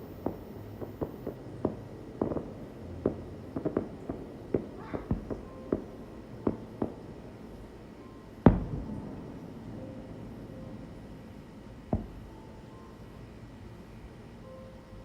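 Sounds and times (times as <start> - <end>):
fireworks bangs: 0.0 - 12.9
loud firework boom: 8.5 - 11.0, 11.9 - 12.4.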